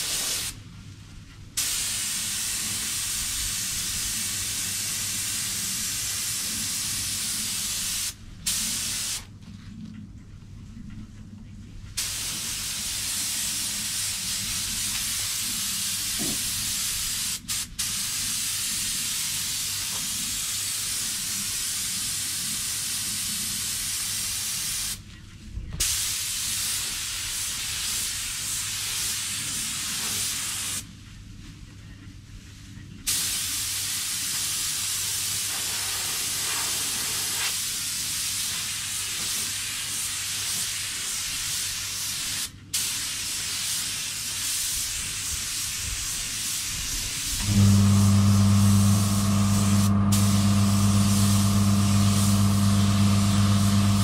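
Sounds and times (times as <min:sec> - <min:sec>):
spray gun air hissing: 0:00.0 - 0:00.6, 0:01.6 - 0:09.3, 0:12.0 - 0:20.6, 0:25.8 - 0:30.8, 0:33.1 - 0:54.0
low steady hum: 0:47.4 - 0:54.0.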